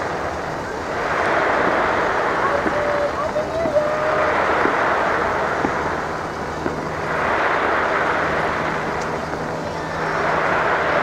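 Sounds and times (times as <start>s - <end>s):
fireworks bursting: 0.0s - 11.0s
sharp firework pops: 1.0s - 9.5s.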